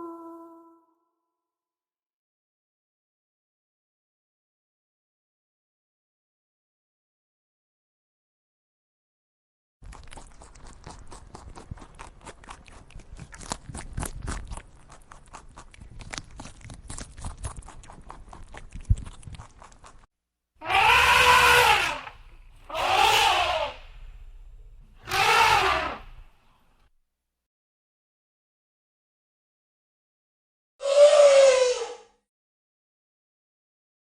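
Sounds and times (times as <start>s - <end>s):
loud rising and falling animal calls: 20.6s - 24.1s, 25.0s - 26.3s.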